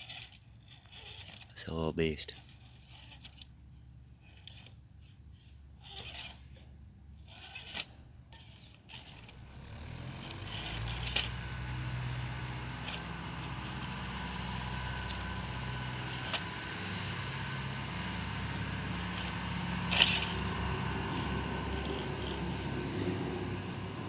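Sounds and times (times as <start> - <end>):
light clicks and scrapes: 0.0 - 1.6, 2.2 - 9.4, 10.0 - 14.4
toy car electric motor running: 0.0 - 24.0.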